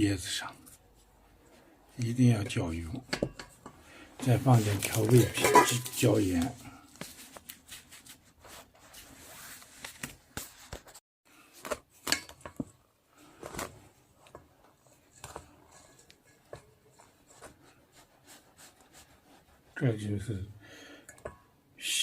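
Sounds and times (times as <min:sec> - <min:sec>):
hands mixing greens in flour: 0:04.2 - 0:09.6.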